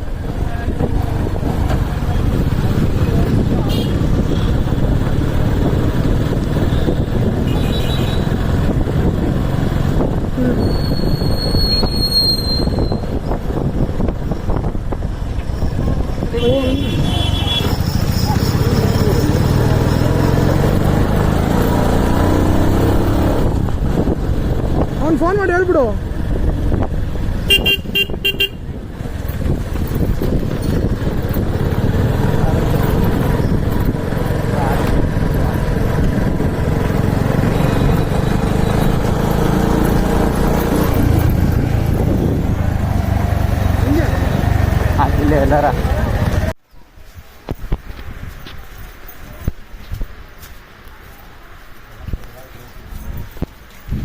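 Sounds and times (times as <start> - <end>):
wind on microphone: 0.0 - 18.1, 20.4 - 25.4, 26.0 - 43.6, 52.0 - 54.0
motorcycle engine running: 13.7 - 46.6
vehicle horn short beeps: 27.5 - 28.6.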